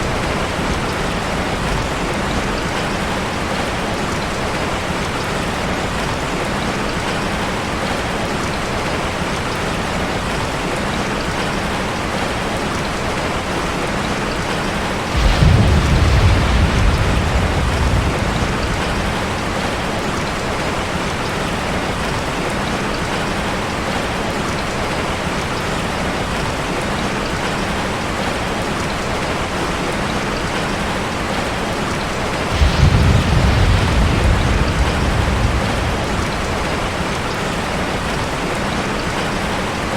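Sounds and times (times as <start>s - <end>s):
cascading water rushing: 0.0s - 39.9s
deep low rumble: 15.2s - 20.6s, 32.5s - 38.4s.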